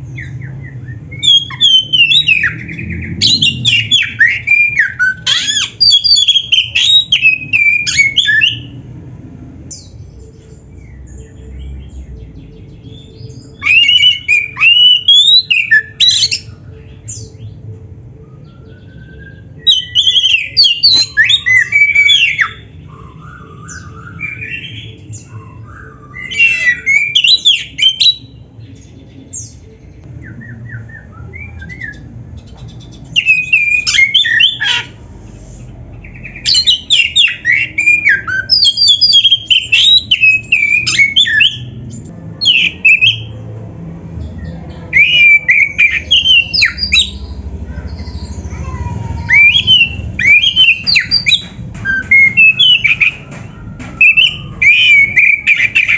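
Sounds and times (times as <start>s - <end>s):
bird singing chattering notes: 36.0s - 43.3s, 44.3s - 55.9s.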